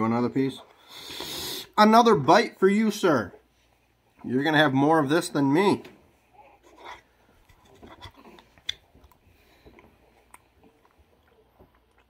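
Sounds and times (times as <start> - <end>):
person chewing: 6.6 - 12.0
small mouth clicks: 6.6 - 12.0.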